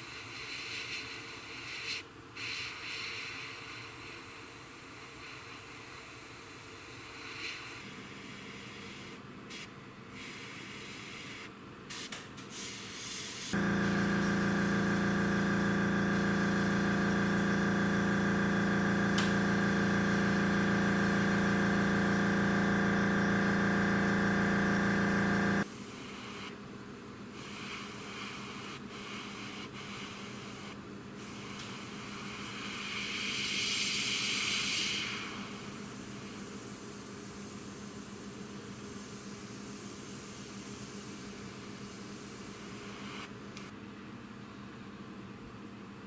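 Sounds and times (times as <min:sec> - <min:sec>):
airbrush spraying hiss: 0:06.2 - 0:26.5
air compressor humming: 0:13.5 - 0:25.7.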